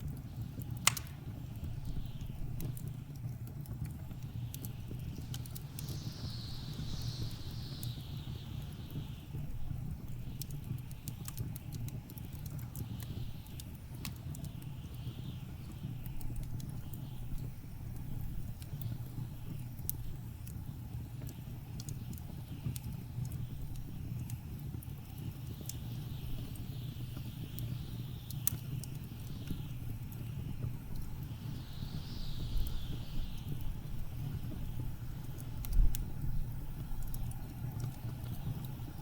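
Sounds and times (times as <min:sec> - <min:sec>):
wood fire crackling and popping: 0:00.0 - 0:39.0
blizzard wind rumbling: 0:29.0 - 0:39.0.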